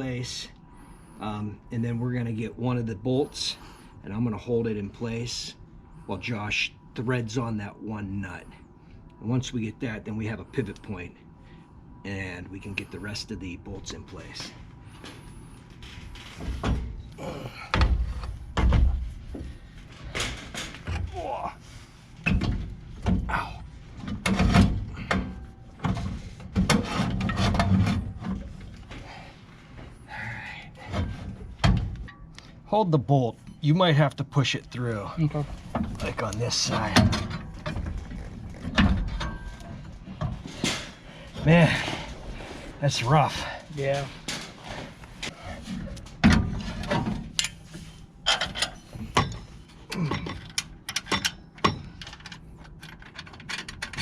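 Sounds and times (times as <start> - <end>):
metal bolts clicking and clinking: 48.2 - 54.0.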